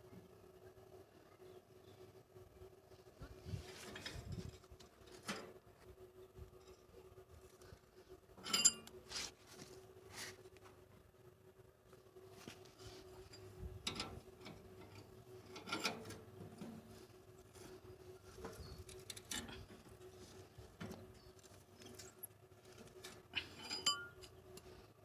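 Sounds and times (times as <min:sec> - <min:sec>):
faint hum: 0:00.0 - 0:25.0
metal clinks and knocks: 0:08.4 - 0:08.9, 0:22.8 - 0:24.4.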